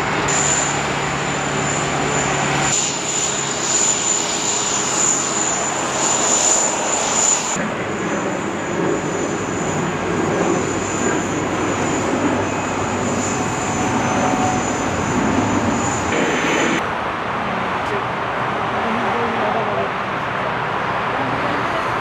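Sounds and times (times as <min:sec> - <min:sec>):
thin high whine: 0:00.0 - 0:16.8
jet engine rushing noise: 0:00.0 - 0:18.7.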